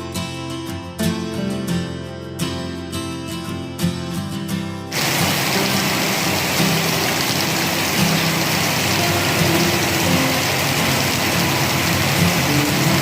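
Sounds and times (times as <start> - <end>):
steady rain falling: 4.9 - 13.0.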